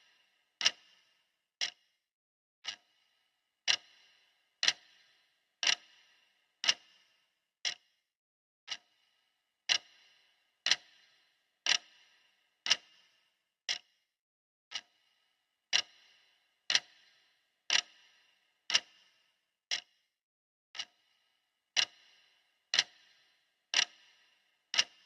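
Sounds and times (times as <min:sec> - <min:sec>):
clock ticking: 0:00.0 - 0:01.0, 0:01.6 - 0:01.8, 0:02.6 - 0:02.9, 0:03.6 - 0:07.0, 0:08.7 - 0:09.0, 0:09.7 - 0:11.1, 0:11.7 - 0:12.1, 0:14.7 - 0:14.9, 0:15.7 - 0:16.1, 0:16.7 - 0:17.1, 0:17.7 - 0:19.0, 0:20.8 - 0:21.0, 0:21.8 - 0:22.1, 0:22.7 - 0:25.0.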